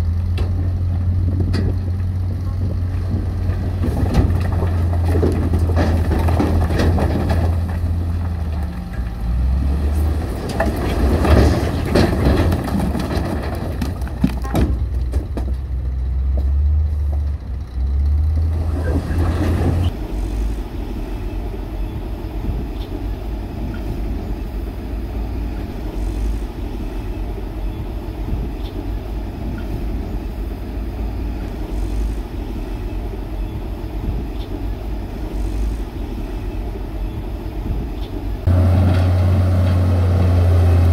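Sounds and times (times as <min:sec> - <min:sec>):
diesel engines droning: 0:00.0 - 0:40.9
metal clanks and scraping: 0:00.3 - 0:15.7.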